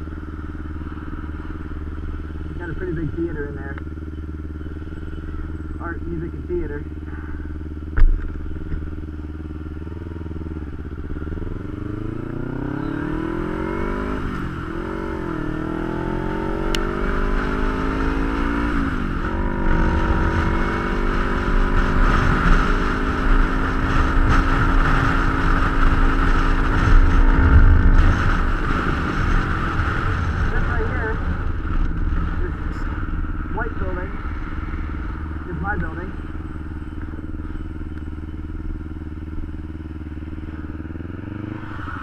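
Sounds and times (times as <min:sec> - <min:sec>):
motorcycle engine accelerating: 0:00.0 - 0:42.0
wind noise: 0:18.1 - 0:35.6.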